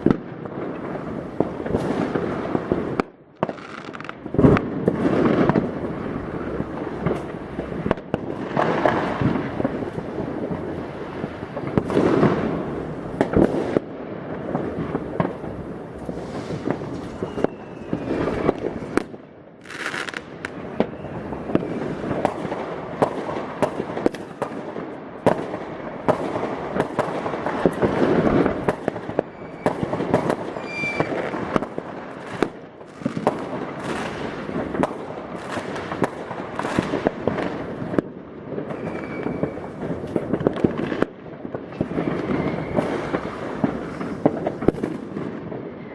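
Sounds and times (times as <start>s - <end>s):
fireworks bangs and crackling: 0.0s - 45.9s
firework whistles: 14.8s - 19.0s, 19.6s - 22.4s, 29.2s - 31.6s, 38.6s - 41.0s, 41.7s - 44.9s.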